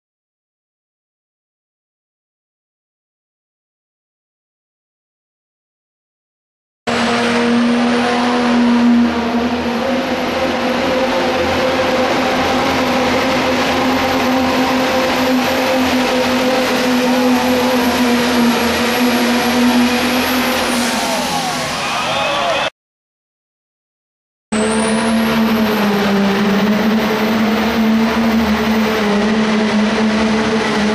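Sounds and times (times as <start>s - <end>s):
diesel truck engine at full throttle: 6.9s - 22.7s, 24.6s - 30.9s.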